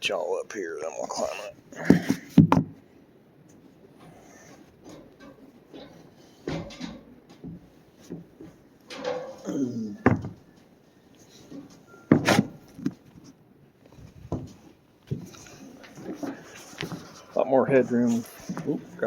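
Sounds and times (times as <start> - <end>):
knocks and thumps on wood: 1.9 - 2.8, 10.0 - 10.4, 14.3 - 15.3.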